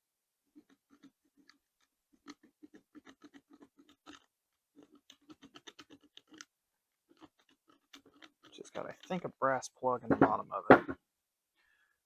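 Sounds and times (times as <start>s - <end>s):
faint rapid clicking: 0.6s - 6.5s.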